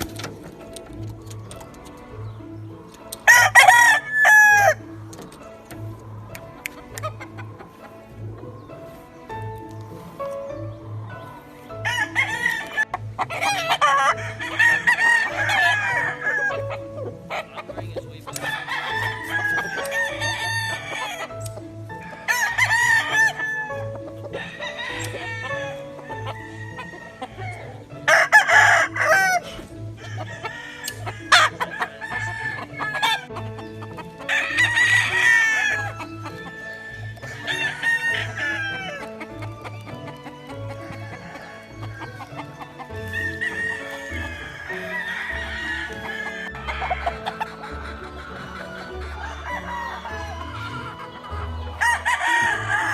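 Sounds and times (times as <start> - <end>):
chickens clucking: 0.0 - 52.9
roosters crowing: 0.0 - 52.9
soft music with steady beat: 0.0 - 52.9.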